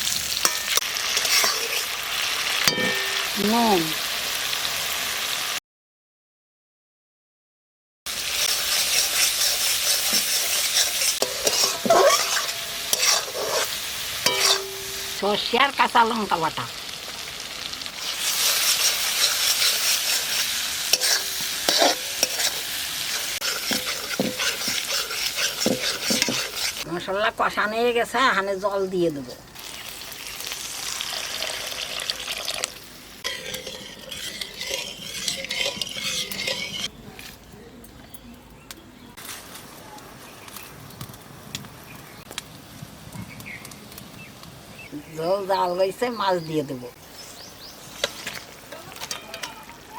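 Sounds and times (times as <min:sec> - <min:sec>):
vegetables sizzling in hot oil: 0:00.0 - 0:05.6, 0:08.1 - 0:26.9, 0:29.5 - 0:36.9, 0:47.0 - 0:49.9
spatula scraping metal pan: 0:00.4 - 0:03.5, 0:08.1 - 0:15.4, 0:18.0 - 0:26.9, 0:33.2 - 0:36.9, 0:48.0 - 0:49.6.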